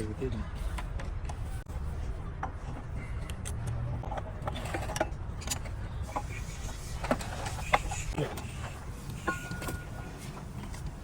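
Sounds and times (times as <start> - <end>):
scraping of workshop parts: 4.0 - 10.5.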